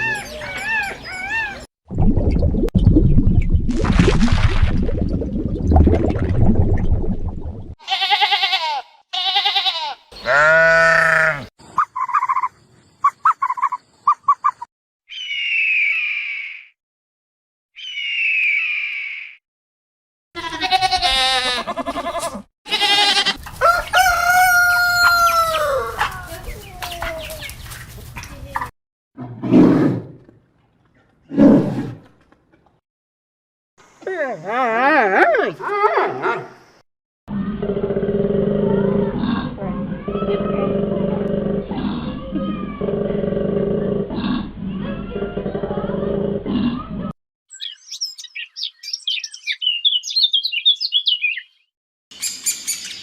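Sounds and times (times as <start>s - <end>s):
chickens clucking: 23.4s - 28.7s
rooster crowing: 23.5s - 26.1s.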